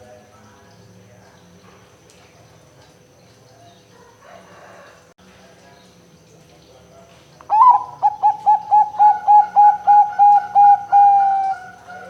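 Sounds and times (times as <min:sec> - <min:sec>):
dove cooing: 0:07.5 - 0:12.0.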